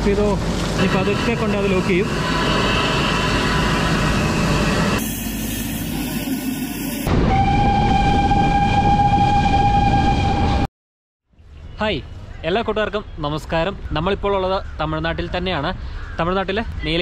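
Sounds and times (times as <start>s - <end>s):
train running: 0.0s - 10.6s
train horn long note: 7.1s - 10.7s.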